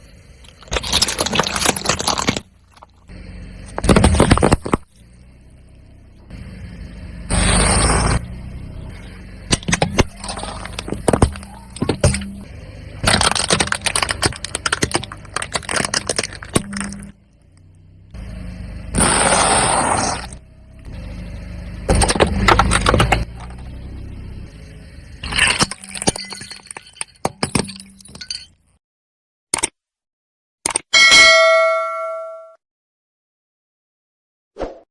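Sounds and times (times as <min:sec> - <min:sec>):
car engine running: 0:00.0 - 0:27.0
tyre crunching objects: 0:00.5 - 0:05.1, 0:09.5 - 0:17.2, 0:19.0 - 0:20.4, 0:21.9 - 0:23.9.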